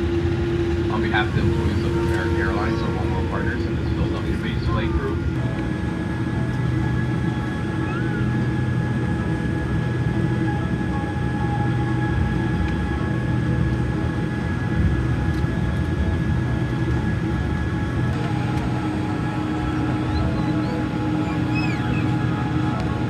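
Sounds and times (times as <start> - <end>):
steady whining tones: 0.0 - 11.8, 17.5 - 23.0
aircraft cabin rumble: 0.0 - 23.0.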